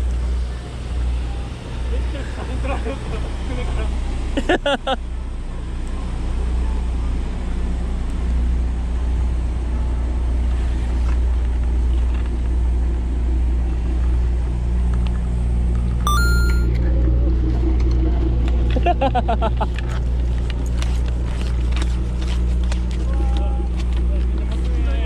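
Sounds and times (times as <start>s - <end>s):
high tone stepping in pitch: 16.1s - 16.7s.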